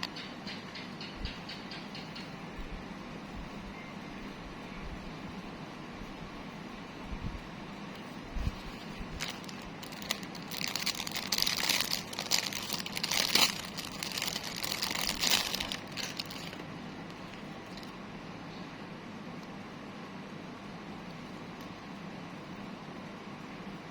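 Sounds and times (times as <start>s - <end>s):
plastic packaging crinkling: 8.5s - 17.9s.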